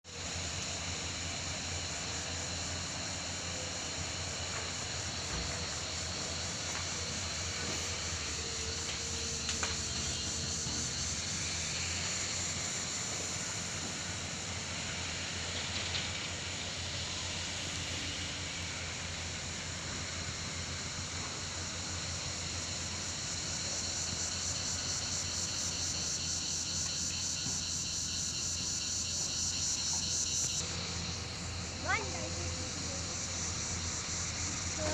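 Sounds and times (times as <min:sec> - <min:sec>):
diesel engine running: 0:00.1 - 0:34.9
high-pitched insect buzz: 0:01.8 - 0:14.0, 0:21.4 - 0:34.9.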